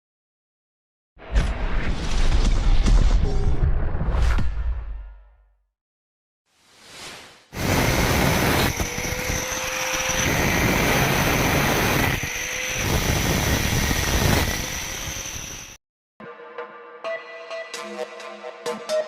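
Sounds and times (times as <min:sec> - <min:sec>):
power tool grinding iron: 0:07.6 - 0:15.8.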